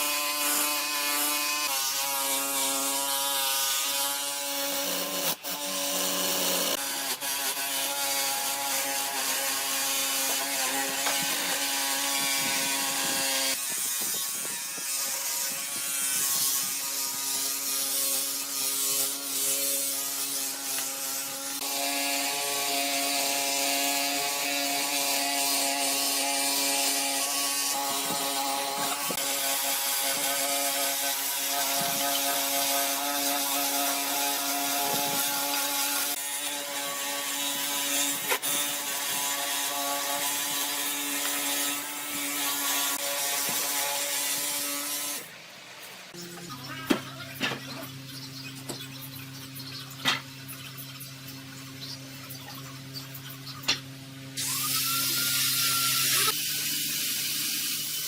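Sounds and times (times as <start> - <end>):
power tool motor whining: 0.0 - 45.3, 54.3 - 58.0.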